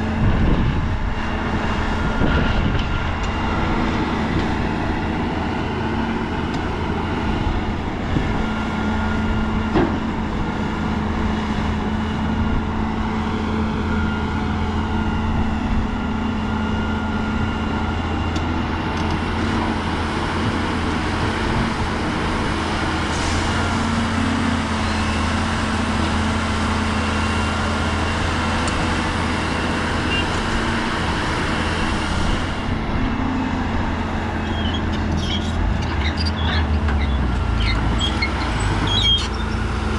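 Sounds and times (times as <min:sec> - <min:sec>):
heavy machinery diesel engine running: 0:00.0 - 0:39.9.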